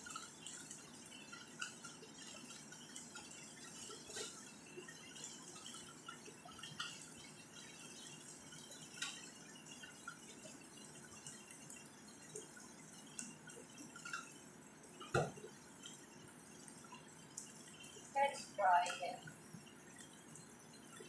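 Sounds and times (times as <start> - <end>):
chicken sizzling in a pan: 0.0 - 11.0
oil crackling and popping: 0.0 - 21.0.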